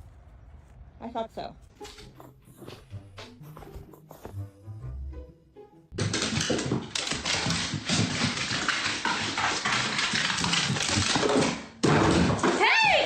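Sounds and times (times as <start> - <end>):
dog vocalizing loudly: 2.0 - 4.3.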